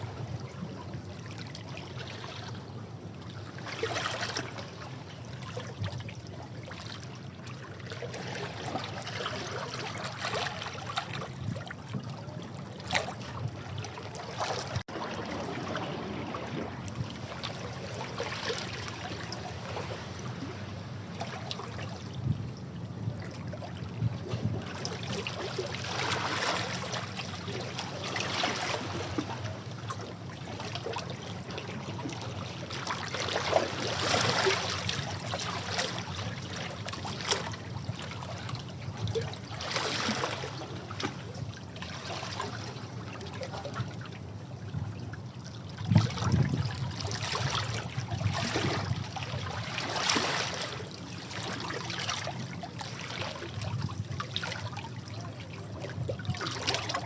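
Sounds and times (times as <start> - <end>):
sea water splashing against rocks: 12.8 - 22.0, 24.0 - 44.1, 45.8 - 57.0.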